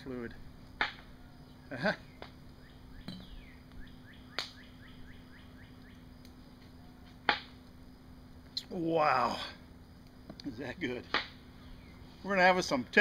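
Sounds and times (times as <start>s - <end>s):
songbird chirping: 1.0s - 7.2s, 11.4s - 12.9s.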